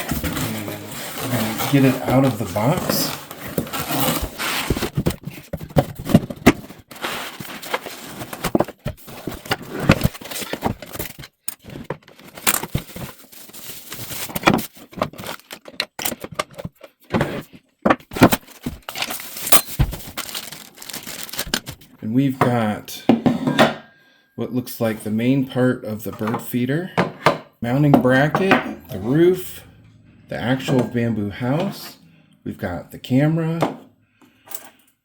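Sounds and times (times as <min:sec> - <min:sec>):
cardboard packaging rustling: 0:00.0 - 0:21.9
parts knocking and clattering: 0:04.7 - 0:13.2, 0:14.4 - 0:21.8.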